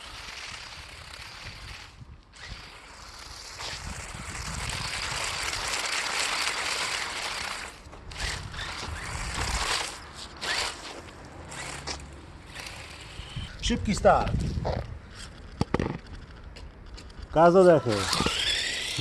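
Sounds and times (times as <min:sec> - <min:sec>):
rc car motor: 0:00.0 - 0:13.6, 0:14.2 - 0:19.0
rc car tyres sliding on asphalt: 0:00.0 - 0:19.0.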